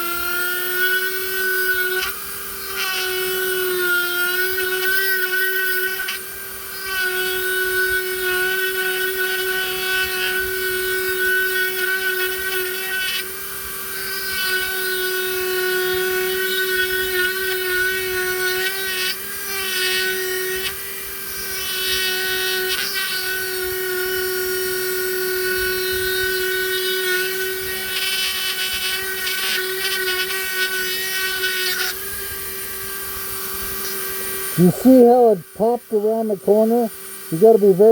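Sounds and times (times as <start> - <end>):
rotary carving tool whine: 0.0 - 37.9
bit grinding wood: 14.0 - 37.9.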